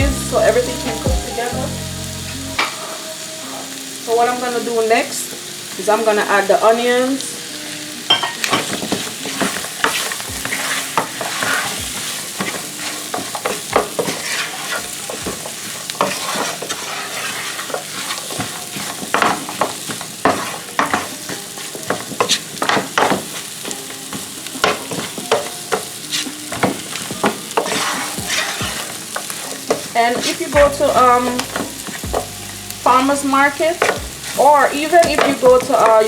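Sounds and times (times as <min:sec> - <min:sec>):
chicken sizzling in hot oil: 0:00.0 - 0:36.0
utensil scraping and knocking pot: 0:09.3 - 0:14.9, 0:16.0 - 0:18.2, 0:26.2 - 0:33.0, 0:33.6 - 0:36.0.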